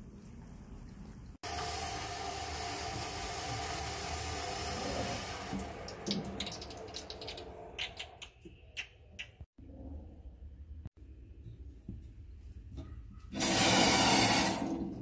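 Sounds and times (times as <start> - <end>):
water rushing through pipe: 1.4 - 7.7, 13.4 - 15.0.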